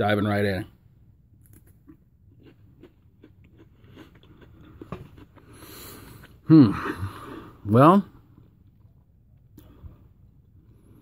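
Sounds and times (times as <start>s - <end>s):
person chewing crunchy food: 1.4s - 7.0s.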